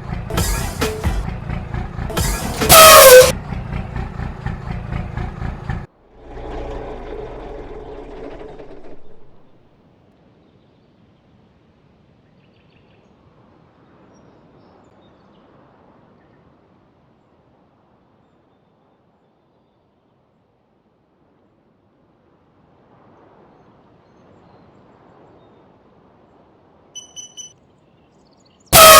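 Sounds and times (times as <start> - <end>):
loud horn blast falling pitch: 0.0 - 9.4
engine running with pulsing: 0.0 - 9.6.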